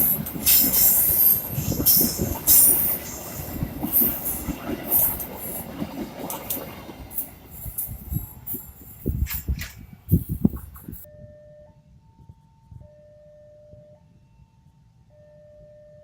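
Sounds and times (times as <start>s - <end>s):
train wheels rumbling on rails: 0.0s - 11.1s.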